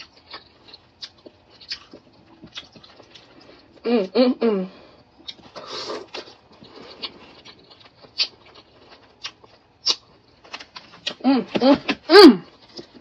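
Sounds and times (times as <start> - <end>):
chewing crunchy fried food: 0.0 - 3.8, 4.9 - 11.2
person humming mm: 3.8 - 4.8.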